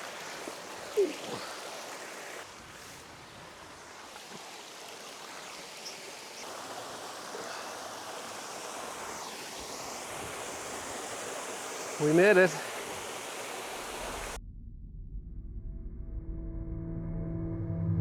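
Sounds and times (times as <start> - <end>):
waterfall rushing: 0.0 - 14.4.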